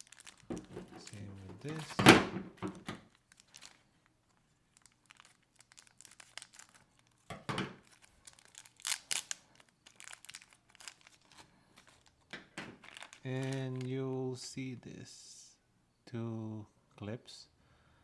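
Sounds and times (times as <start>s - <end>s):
packaging crinkling and tearing: 0.0s - 14.0s.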